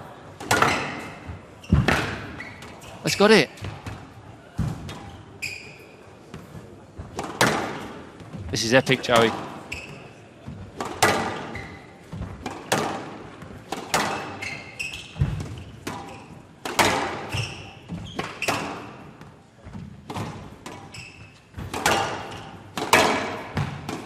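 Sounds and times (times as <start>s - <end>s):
squash ball struck by rackets: 0.4s - 2.4s, 6.3s - 8.3s, 10.6s - 19.3s, 20.0s - 20.9s, 21.5s - 24.0s
ball smacking off court walls: 21.6s - 24.0s.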